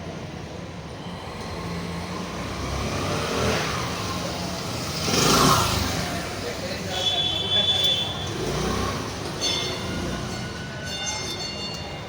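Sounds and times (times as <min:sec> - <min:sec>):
vehicle engine passing by: 0:01.1 - 0:06.8, 0:08.2 - 0:10.6.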